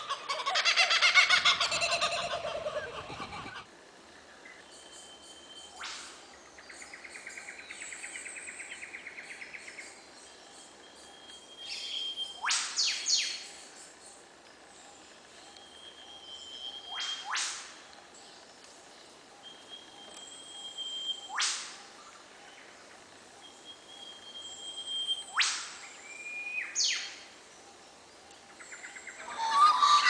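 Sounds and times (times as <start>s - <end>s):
birds calling: 0.0s - 3.7s, 28.6s - 30.0s
faint outdoor hiss: 0.0s - 30.0s.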